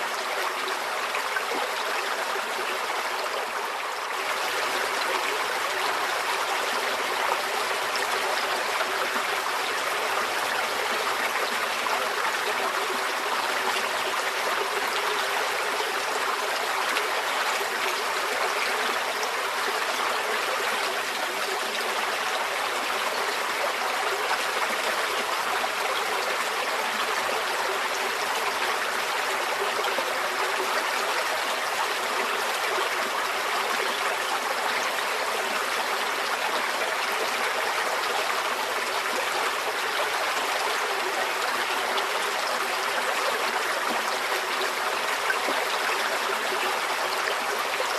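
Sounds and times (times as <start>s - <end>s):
stream flowing over rocks: 0.0s - 47.9s.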